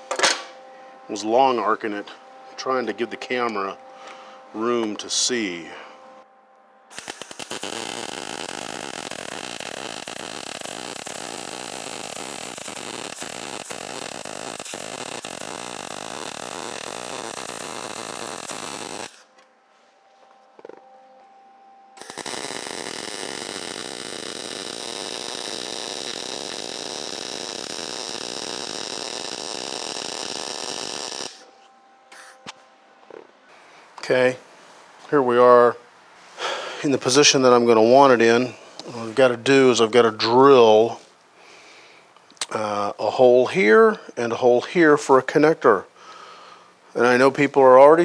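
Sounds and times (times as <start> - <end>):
high whine: 0.0 - 35.9
power tool on steel: 6.9 - 19.3, 22.0 - 31.5.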